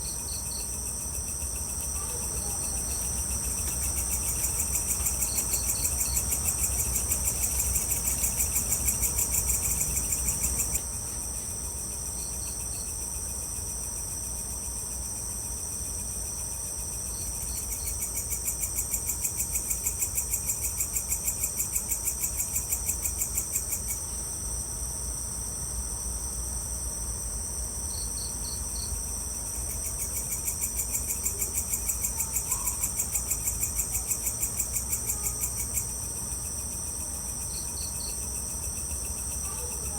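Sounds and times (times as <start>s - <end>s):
high-pitched insect chirring: 0.0s - 10.8s
lower pulsing insect trill: 0.0s - 39.9s
quick cricket chirps: 0.0s - 39.9s.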